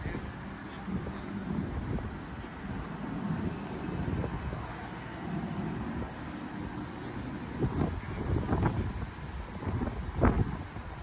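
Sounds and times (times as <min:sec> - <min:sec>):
train wheels rumbling on rails: 0:03.0 - 0:11.0.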